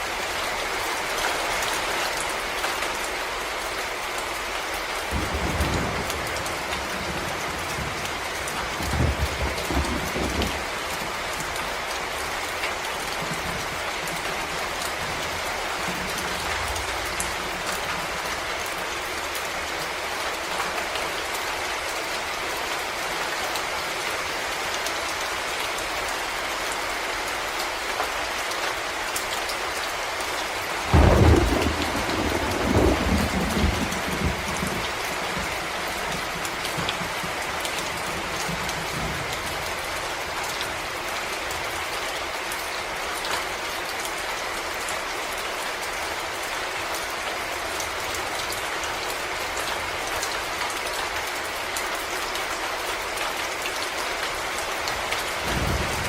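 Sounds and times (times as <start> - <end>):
rain on leaves and ground: 0.0 - 56.0
thunder clap rumbling: 5.1 - 18.8, 30.7 - 41.0, 55.2 - 56.0.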